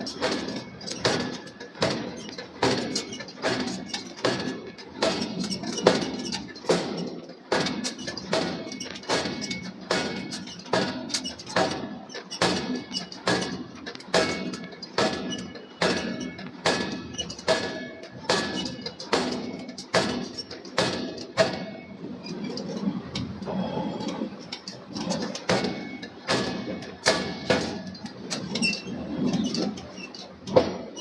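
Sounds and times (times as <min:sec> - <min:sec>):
hammer striking steel on anvil: 0:12.4 - 0:21.7.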